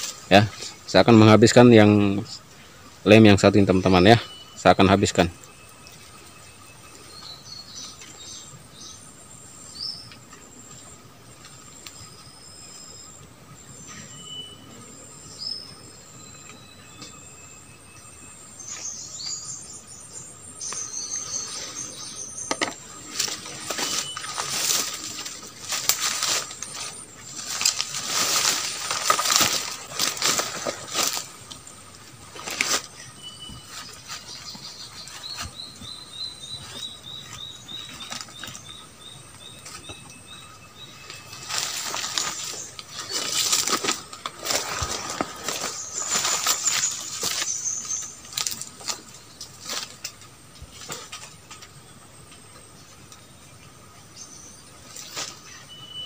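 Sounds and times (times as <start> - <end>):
twigs and leaves rustling: 0.0 - 9.0, 20.6 - 53.3, 54.7 - 56.0.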